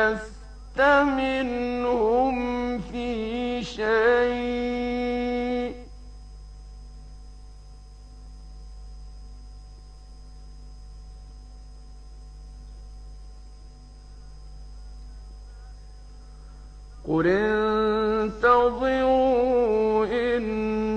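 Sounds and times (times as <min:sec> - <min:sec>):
man reciting: 0:00.0 - 0:05.9, 0:17.0 - 0:20.9
electrical hum and hiss: 0:00.0 - 0:20.9.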